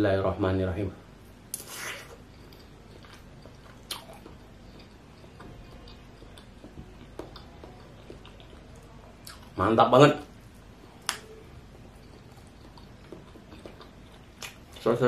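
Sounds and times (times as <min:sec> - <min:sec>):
quiet chewing with mouth clicks: 0:01.5 - 0:09.6, 0:11.0 - 0:15.0.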